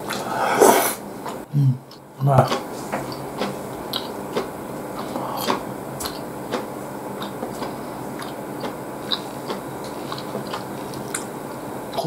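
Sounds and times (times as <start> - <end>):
steady low hum: 0.0 - 12.0
wet chewing mouth clicks: 1.9 - 11.3.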